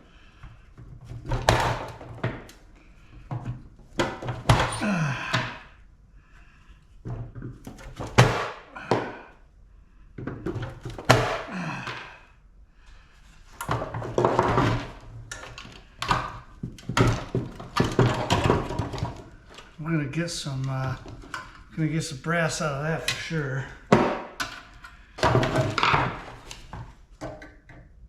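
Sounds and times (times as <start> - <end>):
metal parts clanking and thudding: 0.8 - 5.6, 7.1 - 9.3, 10.2 - 12.2, 13.6 - 19.8, 22.9 - 27.7.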